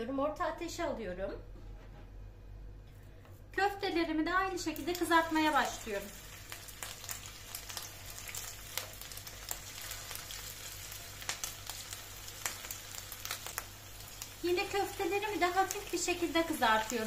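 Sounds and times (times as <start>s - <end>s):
meat sizzling in hot oil: 4.6s - 17.0s.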